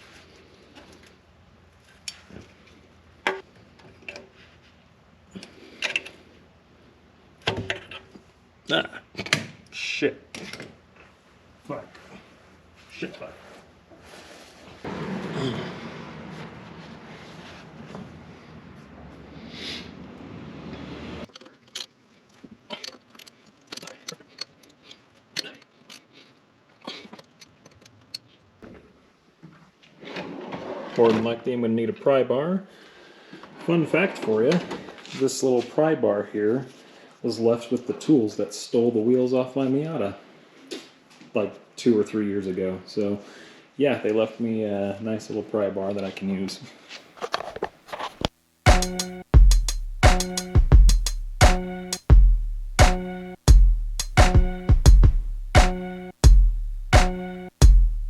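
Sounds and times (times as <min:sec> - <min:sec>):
hand tools and metal parts clicking: 0:21.3 - 0:26.2, 0:27.0 - 0:28.4.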